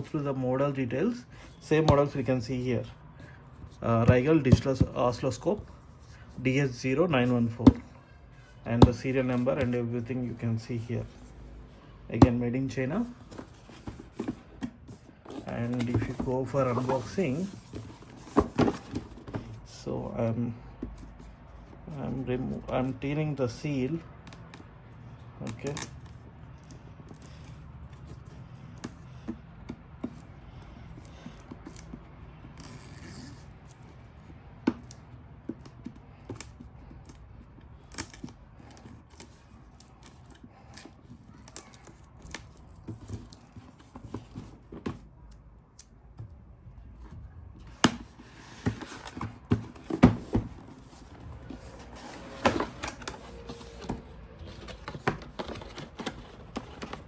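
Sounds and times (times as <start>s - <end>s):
cardboard packaging handled: 12.2s - 19.8s, 47.6s - 57.0s.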